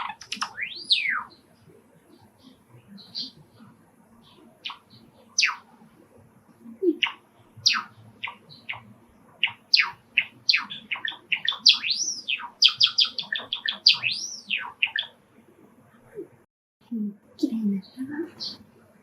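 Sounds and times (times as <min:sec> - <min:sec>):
sparrow singing chirps: 0:00.0 - 0:01.5, 0:02.1 - 0:03.6, 0:04.2 - 0:05.7, 0:06.9 - 0:15.2, 0:18.0 - 0:18.6.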